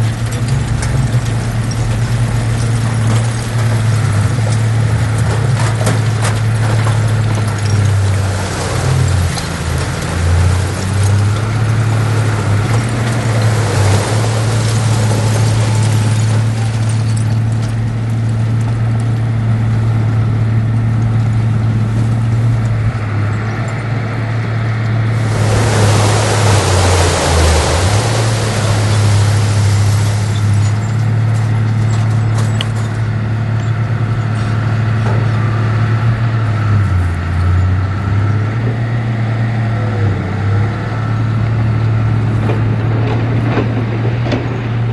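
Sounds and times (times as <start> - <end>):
heavy diesel engine running: 0.0 - 44.9
loud rushing hiss: 12.1 - 16.6, 25.1 - 30.9.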